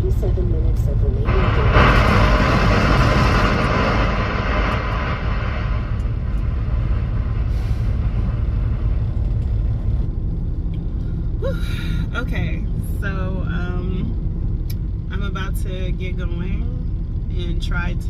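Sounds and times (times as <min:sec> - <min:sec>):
diesel engine idling: 0:00.0 - 0:18.0
air brake hiss: 0:07.5 - 0:08.0.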